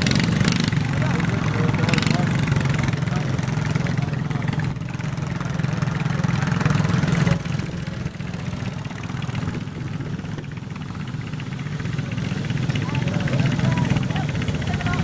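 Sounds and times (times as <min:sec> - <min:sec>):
garden tractor engine running: 0:00.0 - 0:15.0.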